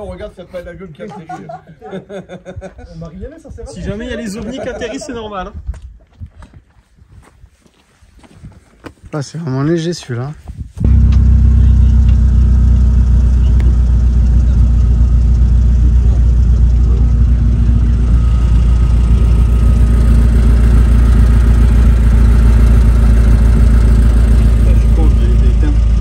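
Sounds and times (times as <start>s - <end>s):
car engine idling: 10.8s - 26.0s.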